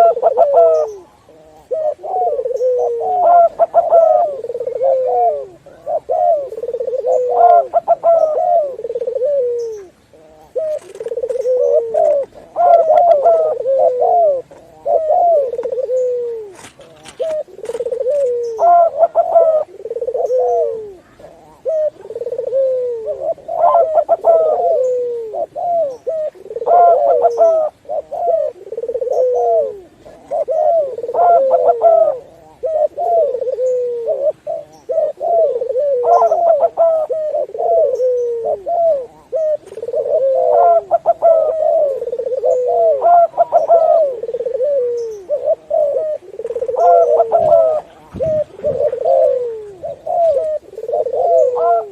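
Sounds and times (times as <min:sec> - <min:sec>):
doves cooing: 0:00.0 - 0:51.9.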